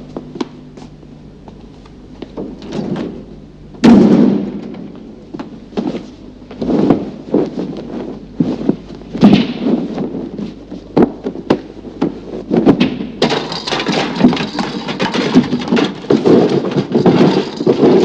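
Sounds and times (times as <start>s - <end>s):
objects knocking and thumping: 12.0s - 18.0s.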